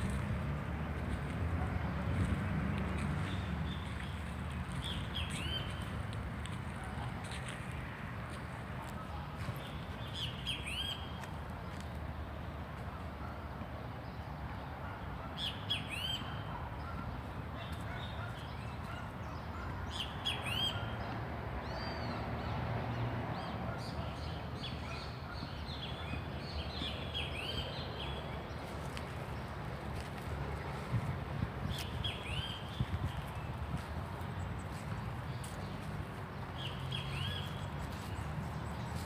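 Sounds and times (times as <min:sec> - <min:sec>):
birds chirping: 0:03.2 - 0:07.4, 0:08.9 - 0:11.9, 0:31.5 - 0:39.0.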